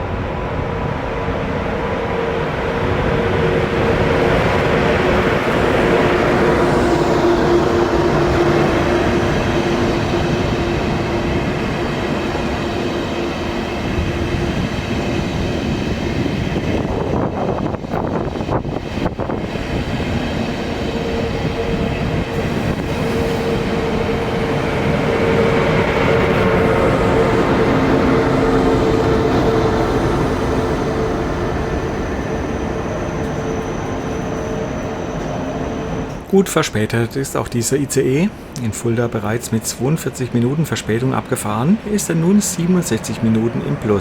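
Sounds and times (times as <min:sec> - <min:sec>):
train rumbling: 0:00.0 - 0:44.0.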